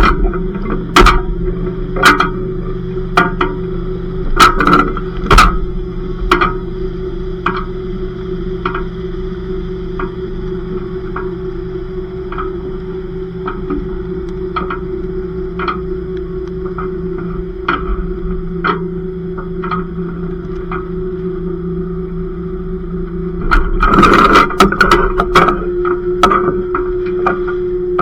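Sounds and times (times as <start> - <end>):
loud sharp knocks: 0.0 - 1.4
machine hum: 0.0 - 28.0.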